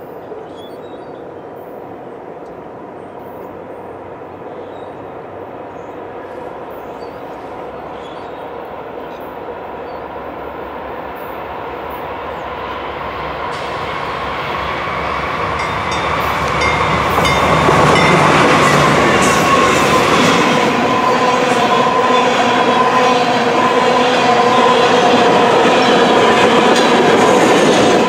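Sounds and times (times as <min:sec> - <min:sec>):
diesel locomotives passing: 0:00.0 - 0:28.0
train wheels squealing: 0:15.6 - 0:22.3
train wheels clicking over rails: 0:24.3 - 0:28.0.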